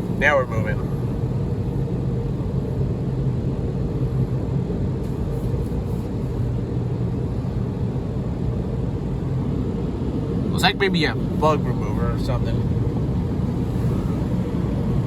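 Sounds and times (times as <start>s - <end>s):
car wash machinery rumble: 0.0s - 15.0s.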